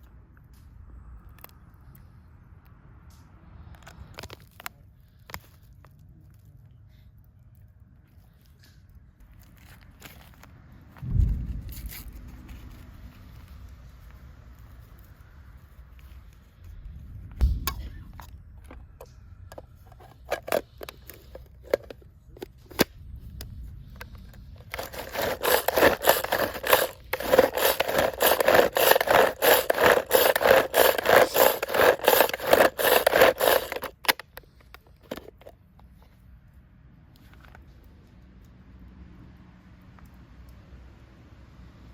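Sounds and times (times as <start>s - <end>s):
rhythmic scraping on wood: 24.6s - 34.2s.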